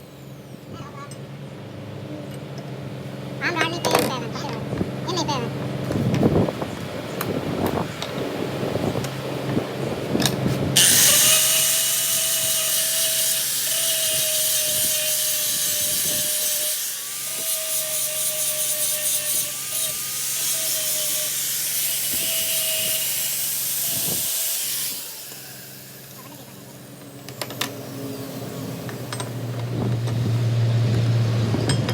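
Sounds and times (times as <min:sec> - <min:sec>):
power tool hissing and whining on metal: 0:10.8 - 0:30.4.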